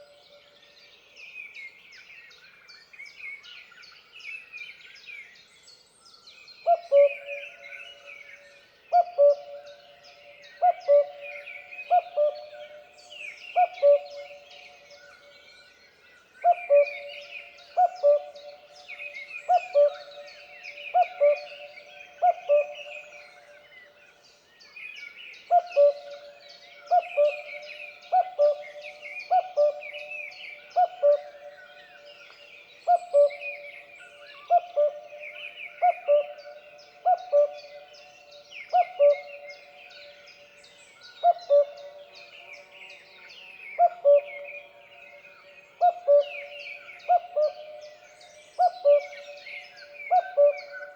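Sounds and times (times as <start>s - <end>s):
cuckoo calling: 9.0s - 9.6s, 13.6s - 14.4s, 16.5s - 17.2s, 25.5s - 26.2s, 32.9s - 33.6s, 34.4s - 37.9s, 38.7s - 39.7s, 41.2s - 42.0s, 43.8s - 44.5s, 45.8s - 47.9s, 48.5s - 50.9s.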